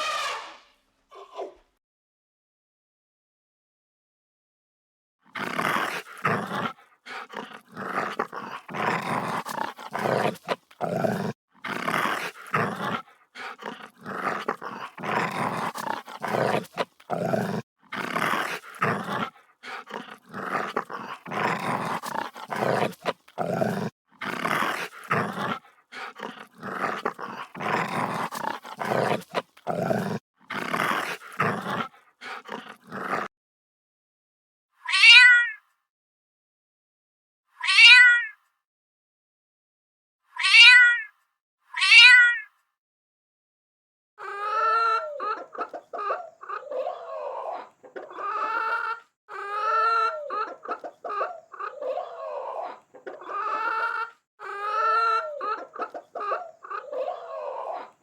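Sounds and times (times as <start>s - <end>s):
animal giving harsh calls: 0.0s - 0.6s, 5.4s - 33.3s.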